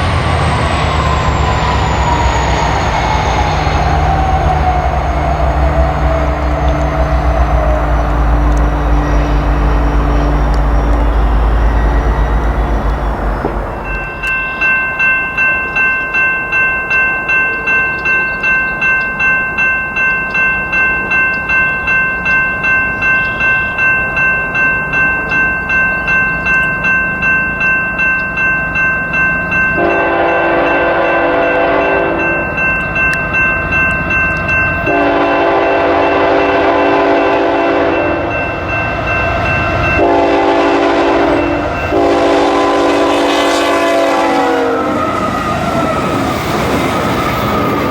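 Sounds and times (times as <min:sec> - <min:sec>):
railroad crossing bell dinging: 0:00.0 - 0:47.9
train air horn blasts: 0:29.8 - 0:32.2, 0:34.9 - 0:38.4, 0:40.0 - 0:46.2.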